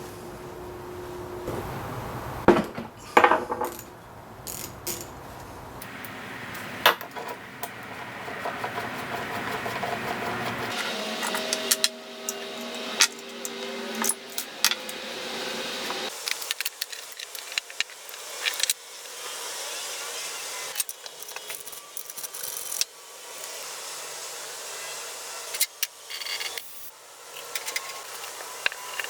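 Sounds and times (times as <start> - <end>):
steady background hum: 0.0 - 19.4
metal tools clinking: 10.8 - 15.0, 16.1 - 18.8.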